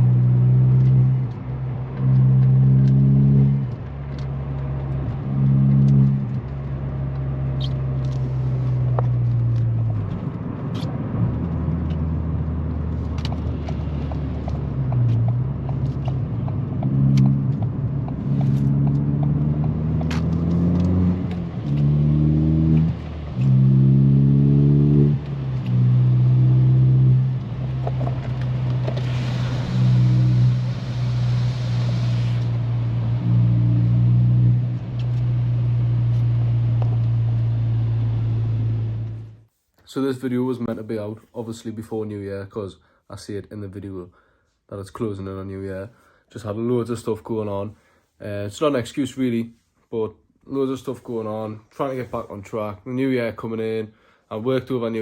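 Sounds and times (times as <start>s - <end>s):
car engine revving: 0.0s - 39.4s.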